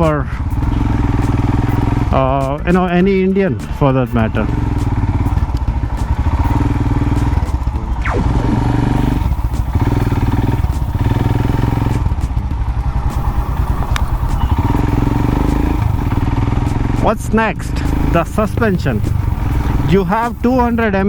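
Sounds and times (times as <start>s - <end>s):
motorcycle engine thumping: 3.6s - 21.0s
brief falling whine: 8.0s - 12.0s, 12.8s - 16.8s.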